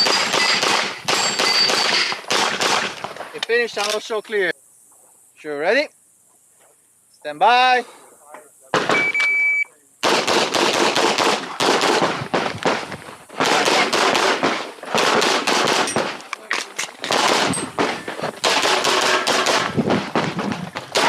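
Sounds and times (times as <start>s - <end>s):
pistol shots: 0.0s - 3.2s, 8.7s - 9.2s, 10.0s - 16.2s, 17.0s - 21.0s.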